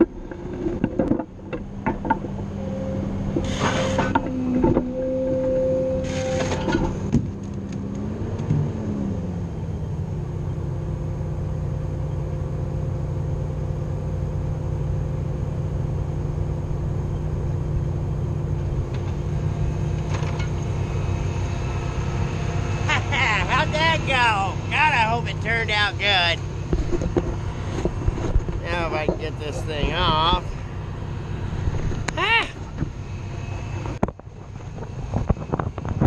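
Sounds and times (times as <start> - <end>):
hydraulic whine: 0.0 - 7.4, 15.4 - 36.0
metal clunks: 0.0 - 7.5
loader engine running: 0.0 - 36.0.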